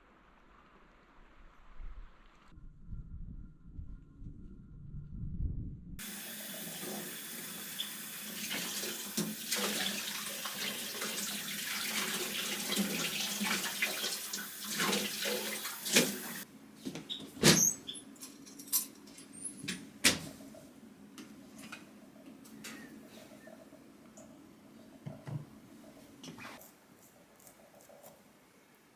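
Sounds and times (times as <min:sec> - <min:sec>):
tap running into sink: 0:06.0 - 0:17.7.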